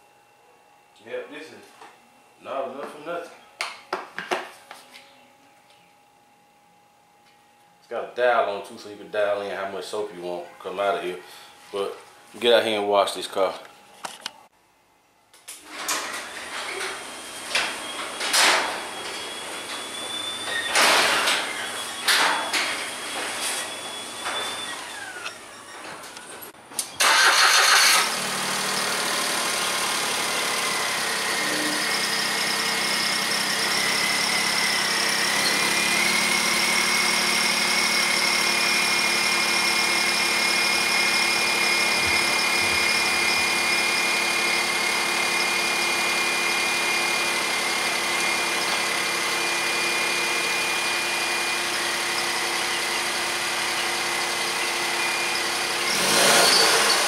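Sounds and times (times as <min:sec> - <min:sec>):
car engine starting and idling: 0:27.0 - 0:57.0
thin high whine: 0:30.9 - 0:38.6.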